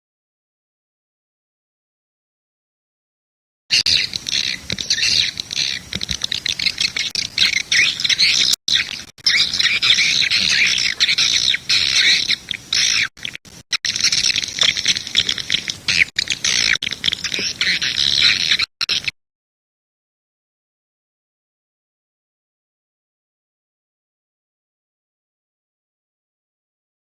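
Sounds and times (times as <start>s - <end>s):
swiftlets chirping and twittering: 3.7s - 19.1s.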